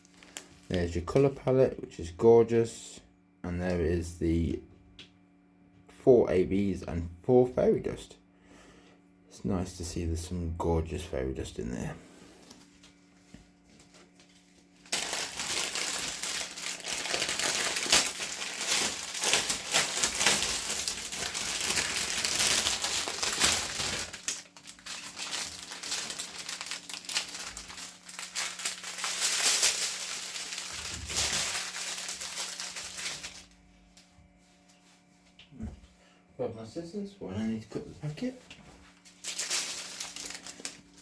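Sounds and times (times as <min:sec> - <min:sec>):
plastic packaging crinkling: 0:00.0 - 0:01.4, 0:13.8 - 0:33.6, 0:39.0 - 0:41.0.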